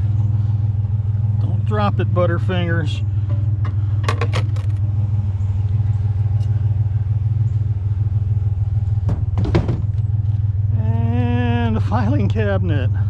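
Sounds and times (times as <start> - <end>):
truck engine idling: 0.0 - 13.0
short knocks and clatter: 9.0 - 10.1.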